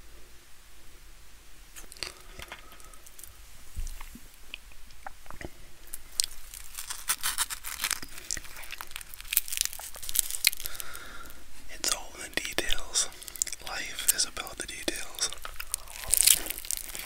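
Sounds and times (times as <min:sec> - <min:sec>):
crunchy bread chewing: 0:01.8 - 0:11.4, 0:12.6 - 0:17.0
small mouth clicks: 0:14.9 - 0:17.0.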